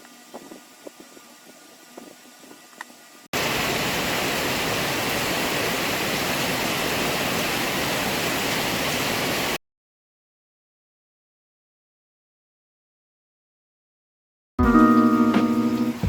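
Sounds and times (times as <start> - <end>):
dense rush of water: 3.4 - 9.6.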